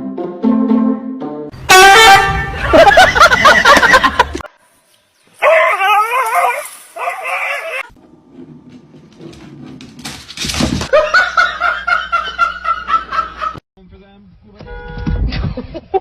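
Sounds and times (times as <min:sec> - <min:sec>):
dog whining: 0:05.4 - 0:07.9.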